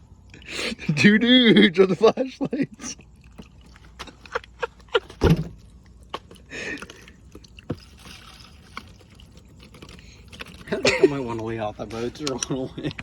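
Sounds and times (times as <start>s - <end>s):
loud thump: 5.2s - 5.6s.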